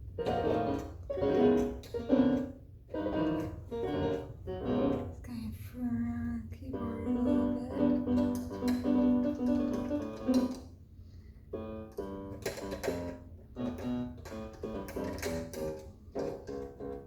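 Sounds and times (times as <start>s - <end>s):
electronic keyboard notes: 0.0s - 5.2s, 6.8s - 10.6s.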